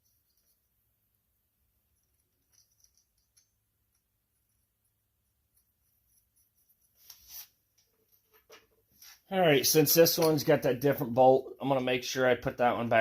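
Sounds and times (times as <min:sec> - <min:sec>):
small metal parts clicking: 0:02.0 - 0:04.1
faint scrape: 0:06.4 - 0:07.6.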